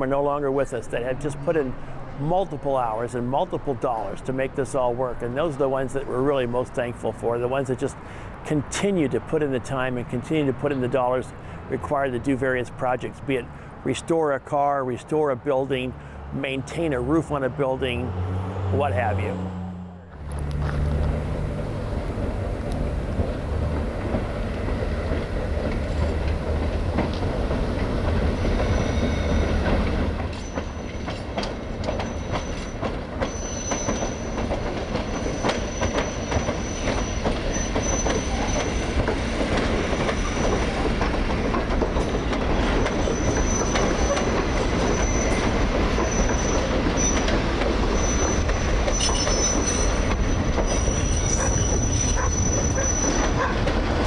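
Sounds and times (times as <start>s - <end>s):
train wheels clicking over rail joints: 20.3s - 54.0s
high wheel squeal: 27.2s - 41.0s, 42.0s - 53.6s.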